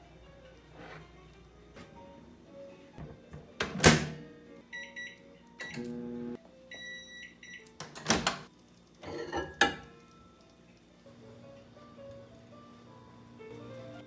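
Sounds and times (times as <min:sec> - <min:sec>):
microwave oven beeping: 0:04.7 - 0:08.4.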